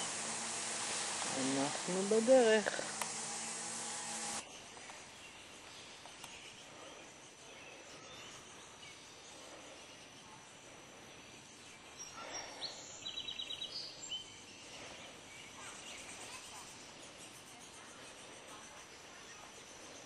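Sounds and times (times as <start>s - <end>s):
thin high whine: 0.0s - 4.5s.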